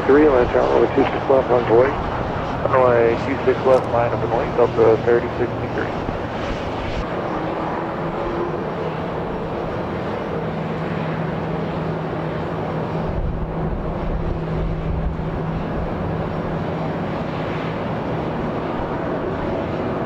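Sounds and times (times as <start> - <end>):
low hum: 0.0 - 7.0
jet engines roaring: 0.0 - 20.0.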